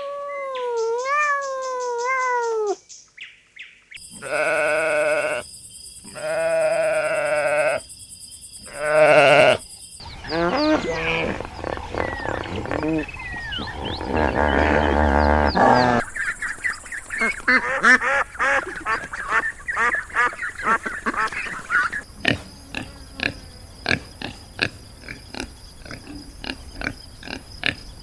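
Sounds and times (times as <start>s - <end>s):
short animal calls and chirps: 0.0s - 3.1s, 3.9s - 7.9s, 8.6s - 17.6s
farm animals bleating: 4.1s - 5.4s, 6.1s - 7.8s, 8.7s - 16.0s.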